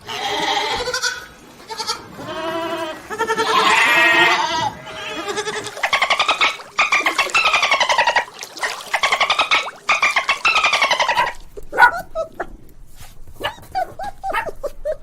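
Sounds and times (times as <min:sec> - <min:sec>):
goat bleating: 0:00.0 - 0:06.4.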